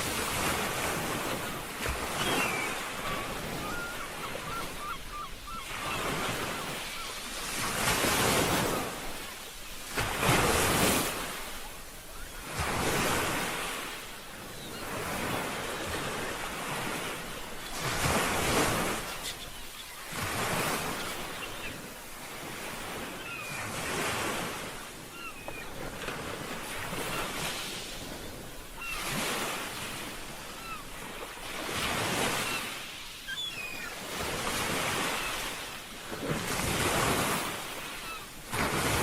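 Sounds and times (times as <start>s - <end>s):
sea waves breaking: 0.0s - 39.0s
wind: 0.0s - 39.0s.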